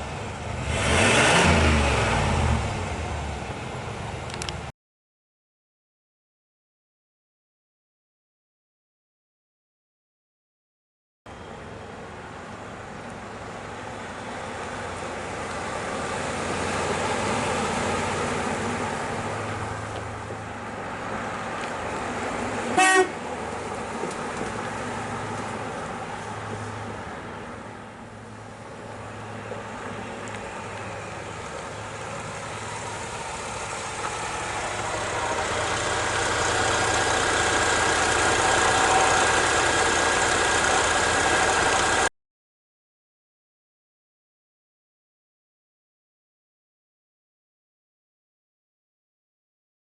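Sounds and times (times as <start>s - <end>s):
car engine and road noise: 0.0s - 4.7s, 11.3s - 42.1s
car horn honk: 22.8s - 23.2s, 38.6s - 39.6s.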